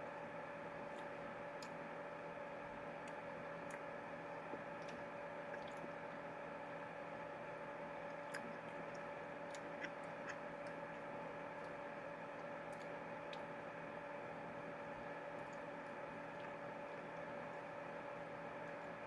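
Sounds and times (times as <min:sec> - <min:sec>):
steady electrical hum: 0:00.0 - 0:19.0
mouth sounds of eating: 0:08.1 - 0:13.6.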